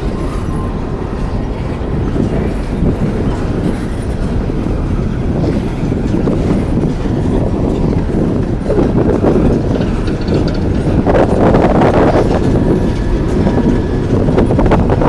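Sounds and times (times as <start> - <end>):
freight cars rumbling on track: 0.0 - 15.0
wheels clicking over rail joints: 0.0 - 15.0.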